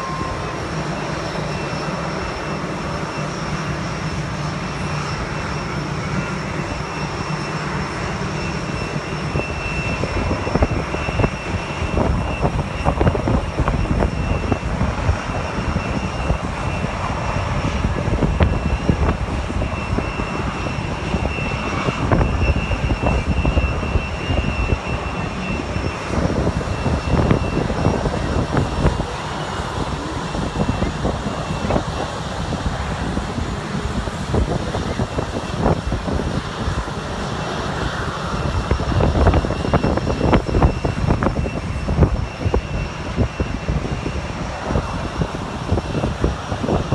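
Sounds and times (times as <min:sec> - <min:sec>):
jet engine high whine: 0:00.0 - 0:46.9
jet engines rumbling: 0:00.0 - 0:46.9.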